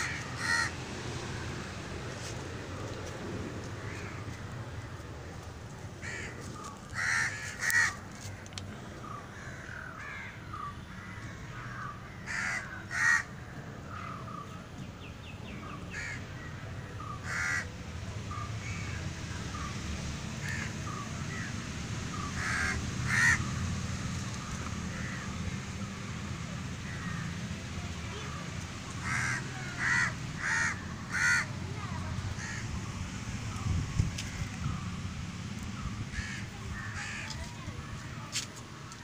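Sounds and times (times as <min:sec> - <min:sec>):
birds cawing harshly: 0:00.0 - 0:01.0, 0:03.8 - 0:04.4, 0:06.0 - 0:14.6, 0:15.6 - 0:19.8, 0:20.4 - 0:23.8, 0:24.4 - 0:25.5, 0:26.8 - 0:27.4, 0:28.1 - 0:32.9, 0:35.8 - 0:37.6.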